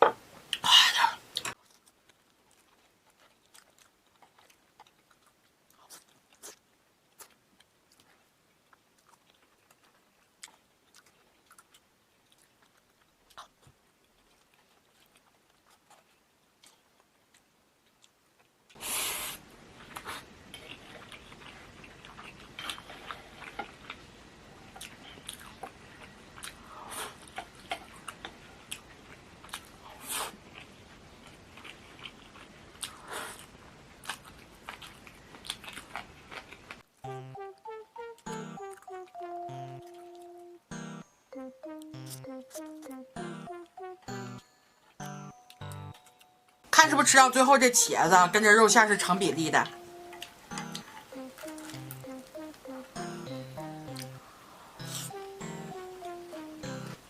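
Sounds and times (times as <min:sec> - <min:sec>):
crunchy chewing: 0:01.3 - 0:18.8, 0:19.8 - 0:36.9.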